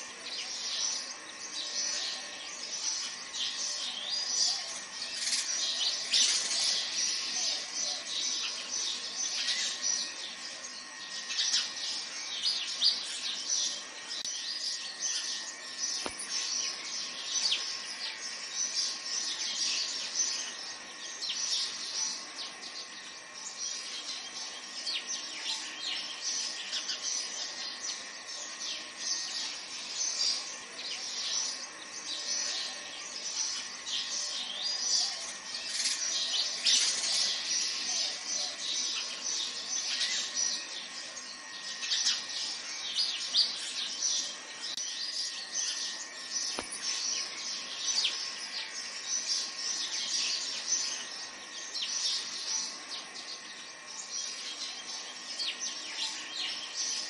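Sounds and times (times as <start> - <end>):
birds chirping chorus: 0.0 - 57.0.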